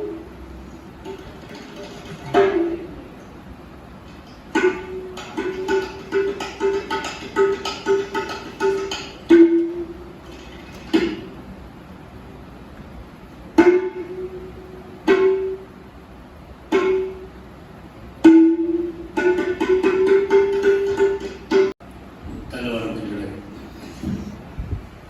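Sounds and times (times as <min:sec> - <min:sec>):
ringing struck notes: 0:04.5 - 0:10.1, 0:13.6 - 0:15.9, 0:16.7 - 0:17.4, 0:18.2 - 0:21.8.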